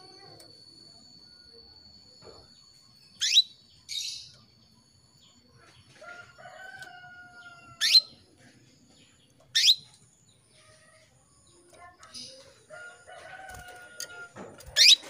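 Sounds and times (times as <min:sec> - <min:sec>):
faint steady bird call: 0:00.0 - 0:08.3, 0:08.9 - 0:15.0
canary sharp upward chirps: 0:03.1 - 0:04.3, 0:07.7 - 0:08.2, 0:09.5 - 0:09.9.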